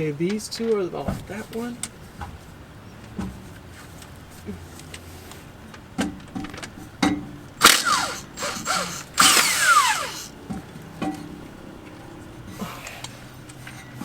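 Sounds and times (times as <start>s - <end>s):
impact gun whine: 7.6s - 10.3s.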